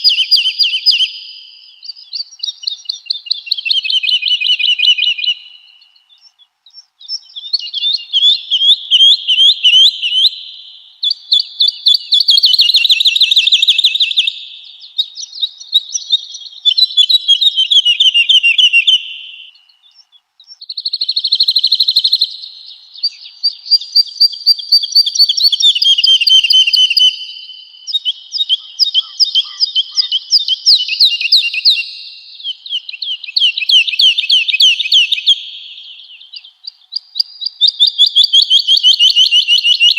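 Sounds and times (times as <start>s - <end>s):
woodlark singing: 0.0s - 39.9s.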